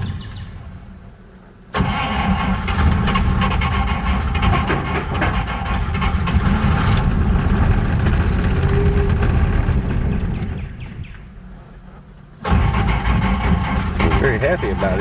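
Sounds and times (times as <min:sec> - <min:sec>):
engine cranking by starter: 0:01.7 - 0:11.6, 0:12.4 - 0:15.0.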